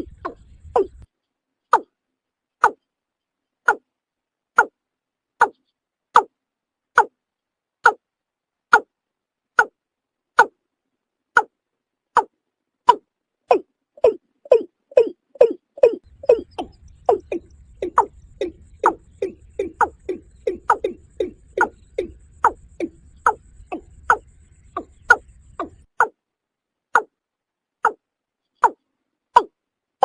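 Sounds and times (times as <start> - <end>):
bird calling hollow falling notes: 0.0 - 1.1, 12.9 - 26.2.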